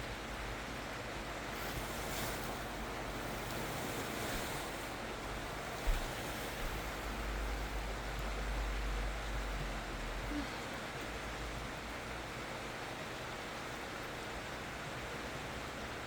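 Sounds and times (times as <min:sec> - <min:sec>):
campfire hissing: 0:00.2 - 0:11.6.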